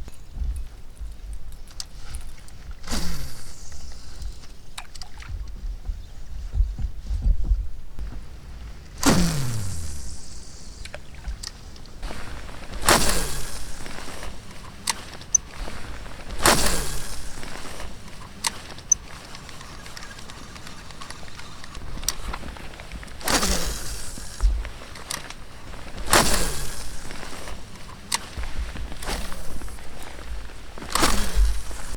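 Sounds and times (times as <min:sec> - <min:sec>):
oars swishing through water: 0:00.0 - 0:31.9
small sharp clicks: 0:09.0 - 0:31.9.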